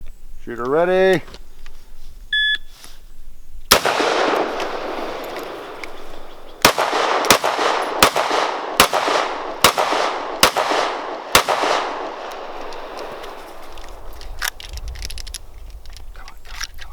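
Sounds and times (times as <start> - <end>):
gunshots with echo: 3.7 - 14.1.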